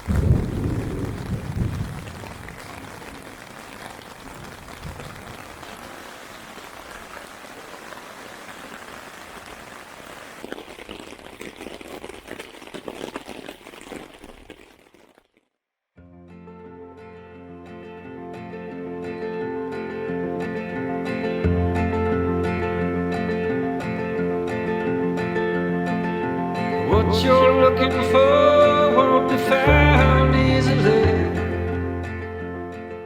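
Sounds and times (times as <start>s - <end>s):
water hissing and crackling: 0.0s - 15.5s
acoustic guitar music: 16.0s - 33.0s.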